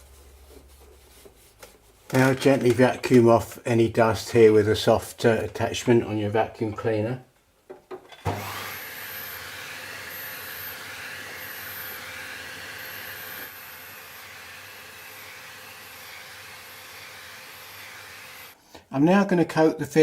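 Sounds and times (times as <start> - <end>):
vacuum cleaner running: 8.2 - 18.6.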